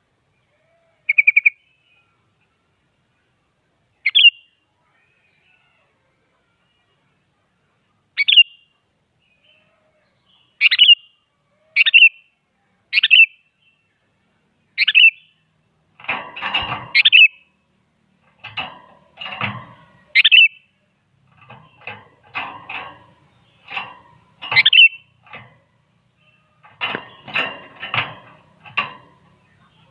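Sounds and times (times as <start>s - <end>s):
harsh rasping bird calls: 0.5s - 2.2s, 4.0s - 5.8s, 8.1s - 12.3s, 12.9s - 13.4s, 14.7s - 17.6s, 18.2s - 29.9s
bulbul sharp calls: 1.1s - 1.7s, 4.0s - 4.5s, 8.2s - 8.6s, 10.5s - 11.2s, 12.9s - 13.4s, 14.8s - 15.4s, 16.9s - 17.5s, 20.1s - 20.7s, 24.4s - 25.1s.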